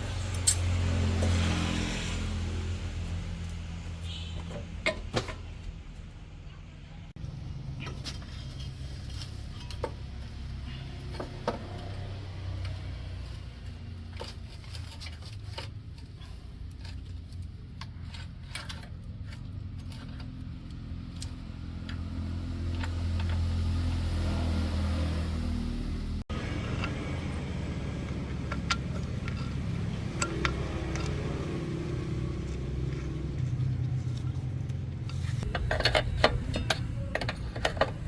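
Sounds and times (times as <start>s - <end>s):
engine humming: 0.0s - 38.0s
metallic clicks and knocks: 26.6s - 33.5s, 34.6s - 38.0s.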